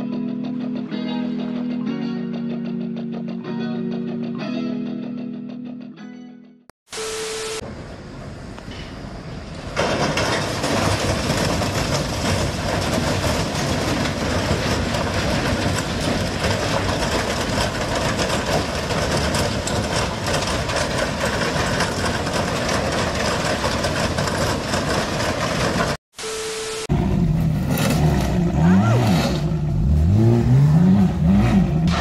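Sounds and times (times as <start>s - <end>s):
beep with static: 6.9s - 7.6s, 26.2s - 26.9s
freight train cars rolling past: 7.7s - 26.0s.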